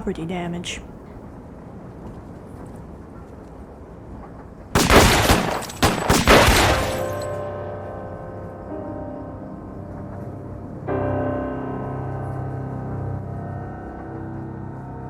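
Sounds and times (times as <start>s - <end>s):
low background hiss: 0.0s - 1.2s
gunfire-like blasts: 4.8s - 7.2s.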